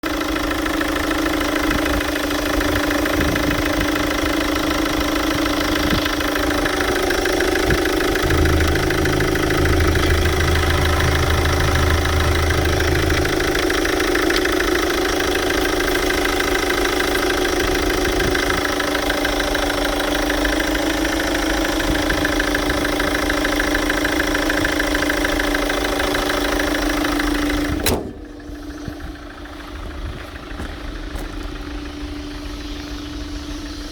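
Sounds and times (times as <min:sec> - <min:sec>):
car engine idling: 0:00.0 - 0:33.9
low hum: 0:08.1 - 0:18.8.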